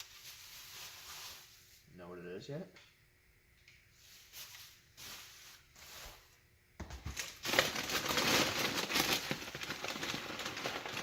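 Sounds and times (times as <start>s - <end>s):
bubble wrap rustling and crinkling: 0.0s - 1.8s, 4.0s - 6.4s, 7.1s - 11.0s.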